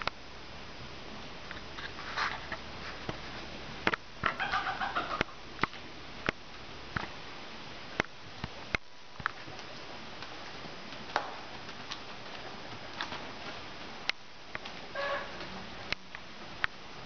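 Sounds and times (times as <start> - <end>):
low hiss: 0.0 - 17.0
bird call: 15.0 - 15.4.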